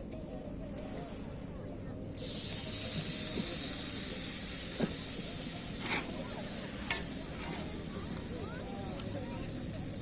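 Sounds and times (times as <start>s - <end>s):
steak sizzling in a pan: 2.2s - 10.0s.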